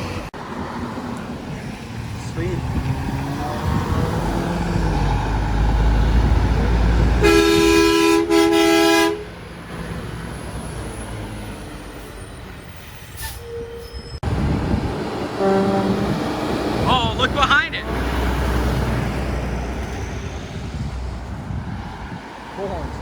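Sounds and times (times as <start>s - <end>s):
road noise: 0.0s - 23.0s
truck engine rumble: 0.0s - 23.0s
truck air horn blasts: 7.2s - 9.4s, 15.3s - 16.3s.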